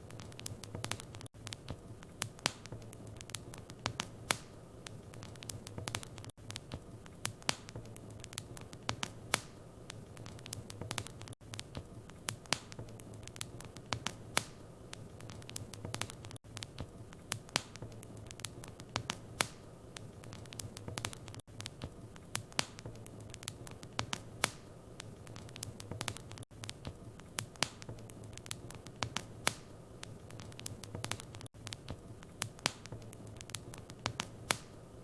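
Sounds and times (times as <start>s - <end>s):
low fire rumble: 0.0s - 35.0s
wood fire crackling and popping: 0.0s - 35.0s.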